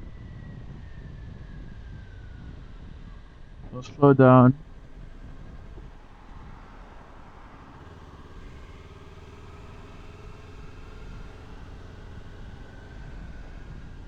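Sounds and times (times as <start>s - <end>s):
motorcycle engine running: 4.6s - 14.0s.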